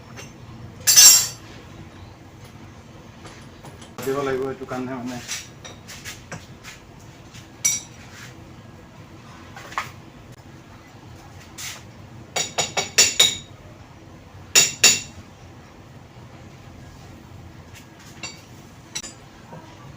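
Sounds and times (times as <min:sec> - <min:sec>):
metal-on-metal clinks: 0:00.8 - 0:01.4.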